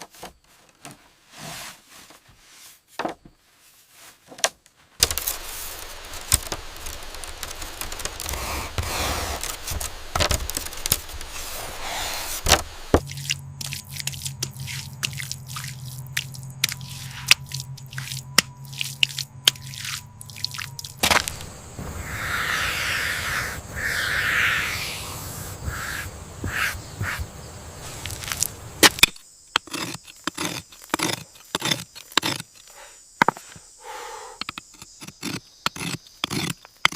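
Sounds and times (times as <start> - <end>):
scraping and rubbing construction work: 1.1 - 2.9, 5.4 - 33.6, 34.4 - 36.9
low hum: 12.6 - 29.2
thin high tone: 13.0 - 26.8.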